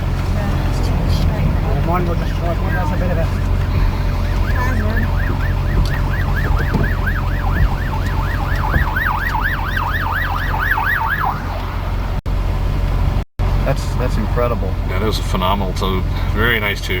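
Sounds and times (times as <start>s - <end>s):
steady low rumble: 0.0s - 17.0s
siren yelping: 4.0s - 12.0s.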